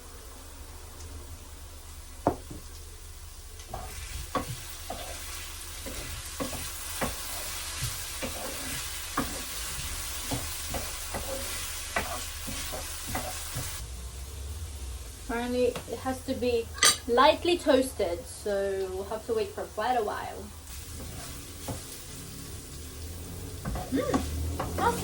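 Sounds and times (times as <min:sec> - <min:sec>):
food sizzling in a frying pan: 0:00.0 - 0:25.0
utensil scraping a pan: 0:03.7 - 0:13.8.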